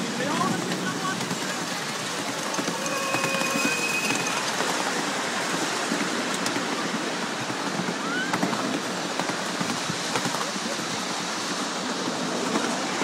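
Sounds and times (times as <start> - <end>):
miniature steam train rushing: 0.0 - 13.0
short rising squeak: 2.3 - 4.8.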